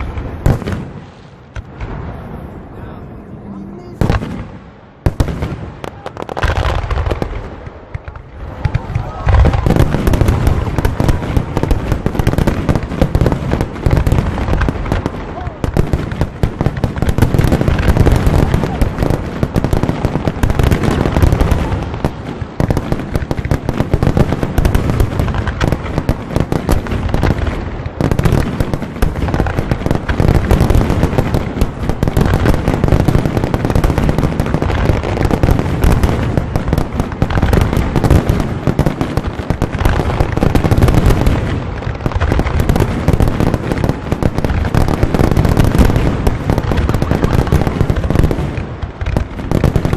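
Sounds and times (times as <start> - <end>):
fireworks bursts and bangs: 0.0 - 49.9
low firework booms: 0.0 - 49.9.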